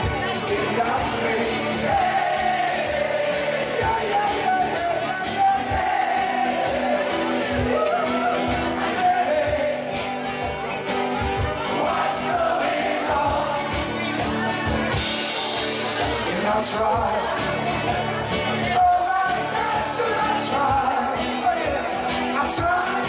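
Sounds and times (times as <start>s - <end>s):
person singing: 0.0s - 10.6s, 11.4s - 14.5s, 18.6s - 23.0s
steady drum beat: 0.0s - 23.0s.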